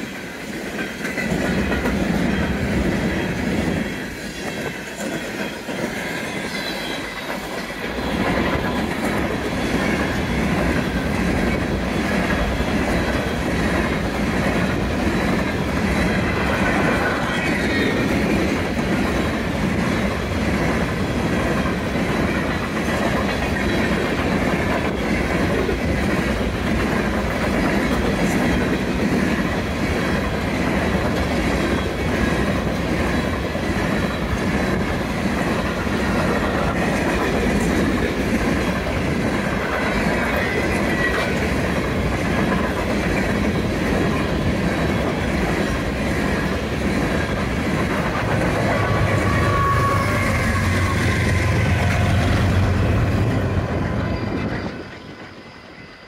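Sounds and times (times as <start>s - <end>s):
freight train cars rolling: 0.0s - 56.0s
high wheel squeal: 3.8s - 7.8s, 48.6s - 56.0s.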